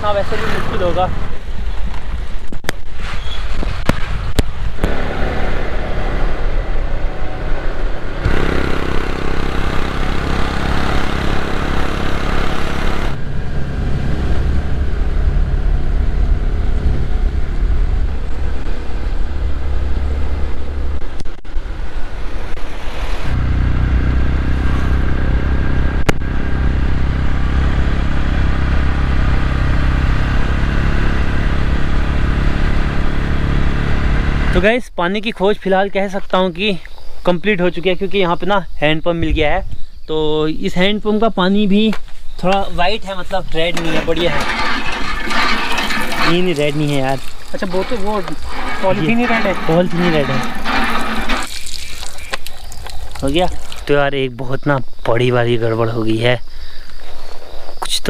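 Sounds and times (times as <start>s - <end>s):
motorcycle engine running: 4.8s - 21.6s, 23.3s - 34.6s, 47.4s - 51.5s.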